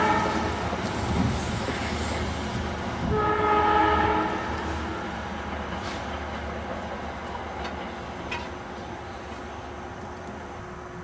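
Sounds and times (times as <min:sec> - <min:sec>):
train horn blast: 0:00.0 - 0:00.6, 0:03.0 - 0:05.1
train rumbling along track: 0:00.0 - 0:11.0.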